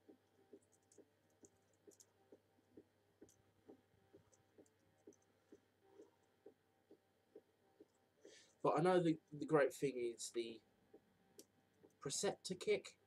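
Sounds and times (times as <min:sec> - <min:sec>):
faint even ticking: 0:00.0 - 0:09.4.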